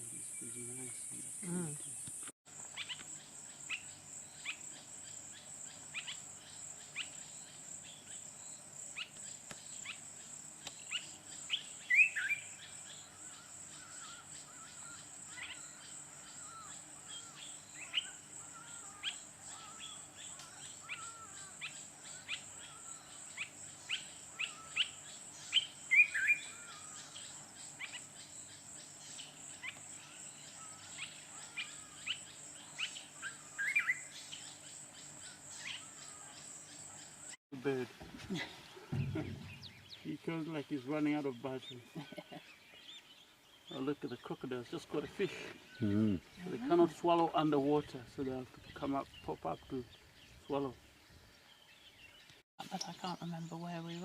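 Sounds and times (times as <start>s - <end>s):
birds chirping and whistling: 10.6s - 37.4s, 38.7s - 44.4s.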